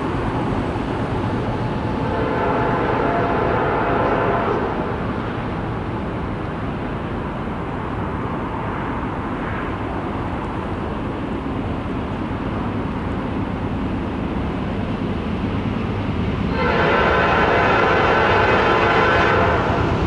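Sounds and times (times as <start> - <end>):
distant freight train rumbling: 0.0 - 20.0.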